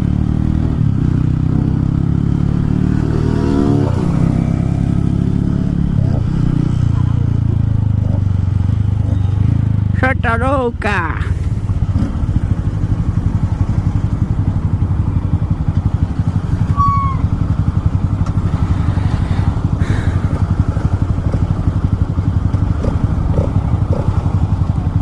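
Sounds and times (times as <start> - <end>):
motorcycle engine running: 0.0 - 25.0
brief high-pitched tone: 16.7 - 17.3.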